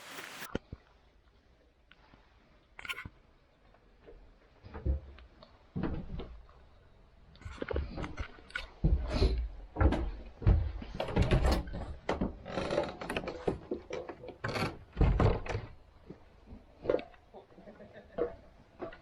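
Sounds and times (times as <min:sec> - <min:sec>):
knocks and thumps: 0:08.8 - 0:15.8
door being moved: 0:11.0 - 0:15.8.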